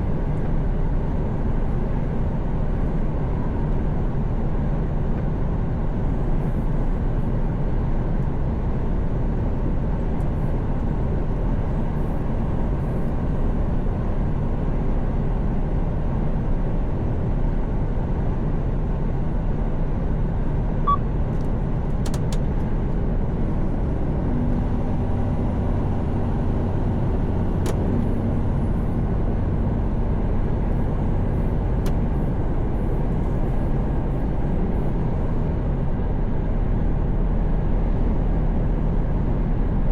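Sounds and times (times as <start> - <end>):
truck engine hum: 16.2 - 39.9
road noise: 18.4 - 39.9.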